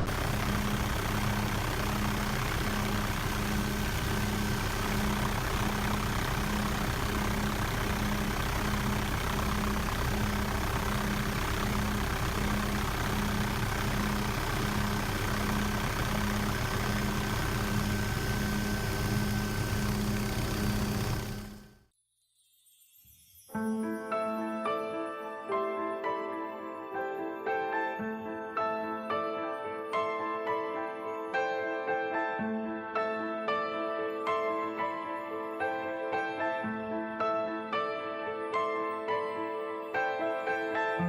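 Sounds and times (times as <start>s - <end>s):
engine drone with pulsing hum: 0.0s - 21.8s.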